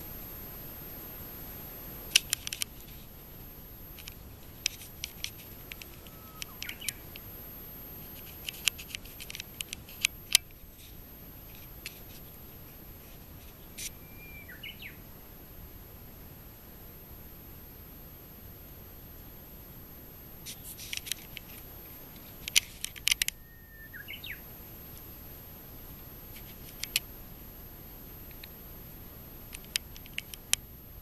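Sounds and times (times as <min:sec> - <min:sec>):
steady background hiss: 0:00.0 - 0:31.0
small birds chipping: 0:04.0 - 0:07.3, 0:13.6 - 0:15.0, 0:22.4 - 0:24.5
short whistled bird notes: 0:13.9 - 0:15.0, 0:23.4 - 0:24.4.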